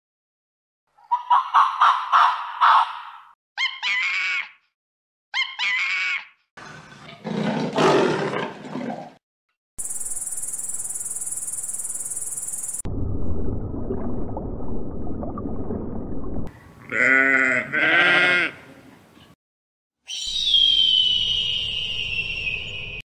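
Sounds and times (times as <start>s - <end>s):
sheep bleating: 16.8s - 18.7s.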